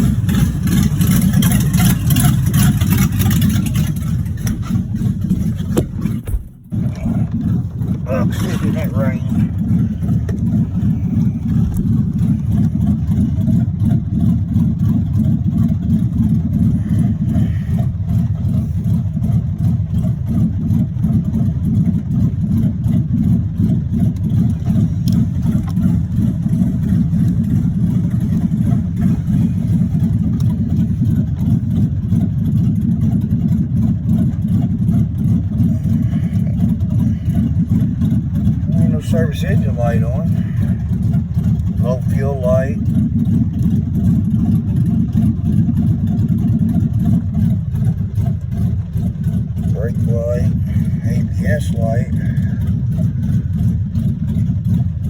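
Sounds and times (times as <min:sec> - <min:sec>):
car engine rumbling: 0:00.0 - 0:55.0
engine rod knock: 0:00.3 - 0:08.0.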